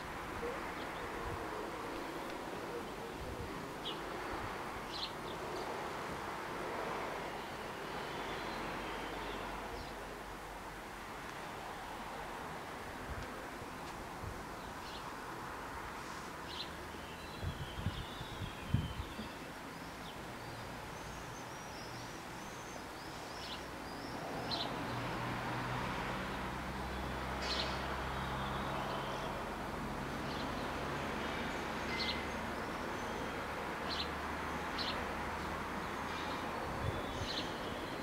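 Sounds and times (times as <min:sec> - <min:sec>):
small birds chirping: 0:16.5 - 0:24.9.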